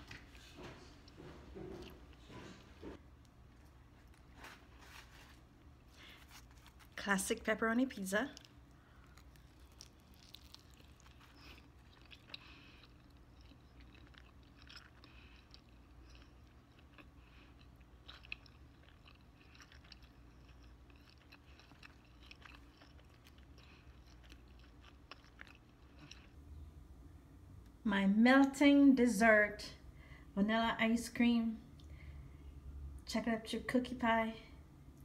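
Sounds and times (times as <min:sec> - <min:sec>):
crust crunching: 0:03.5 - 0:07.1
chewing mouth sounds: 0:08.4 - 0:26.4.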